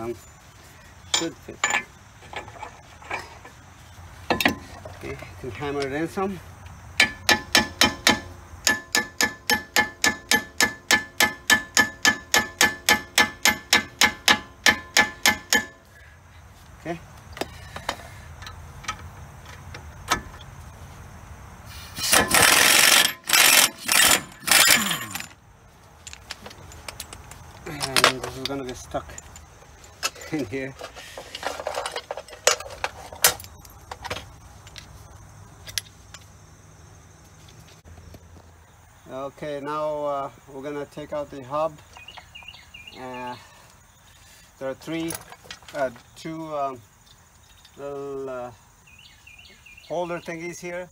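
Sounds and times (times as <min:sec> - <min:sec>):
metal tools clinking and rattling: 0:01.0 - 0:03.6, 0:04.3 - 0:05.9, 0:22.0 - 0:35.0, 0:44.8 - 0:46.1
hammer ringing on metal socket: 0:07.0 - 0:15.8.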